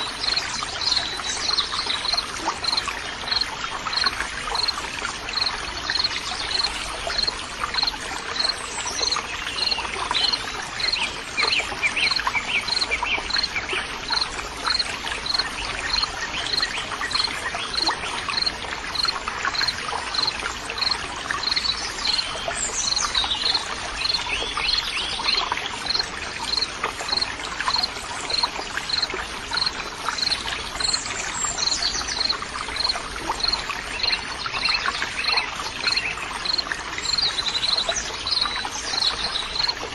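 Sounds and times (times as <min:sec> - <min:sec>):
trickling water: 0:00.0 - 0:39.9.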